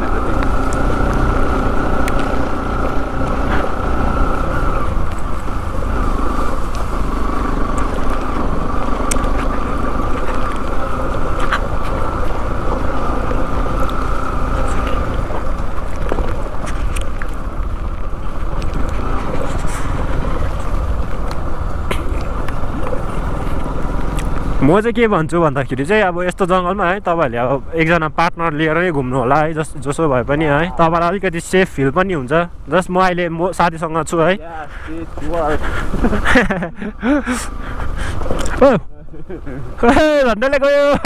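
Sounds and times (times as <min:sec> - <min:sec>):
motorcycle engine running: 0:00.0 - 0:31.8, 0:32.5 - 0:41.0.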